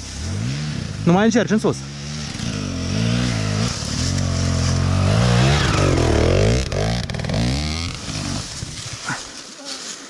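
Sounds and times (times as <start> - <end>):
dirt bike engine revving: 0.0 - 8.9.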